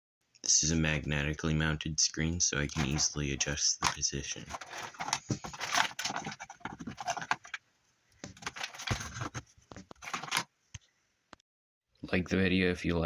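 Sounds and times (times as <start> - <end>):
plastic case clicking and scraping: 2.7 - 7.6, 8.2 - 10.5.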